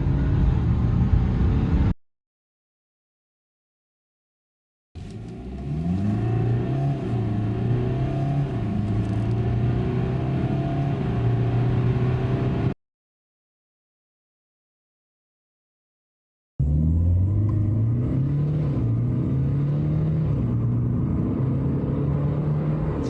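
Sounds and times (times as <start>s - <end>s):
diesel engine accelerating hard: 0.0s - 1.9s, 5.0s - 12.8s, 16.6s - 23.0s.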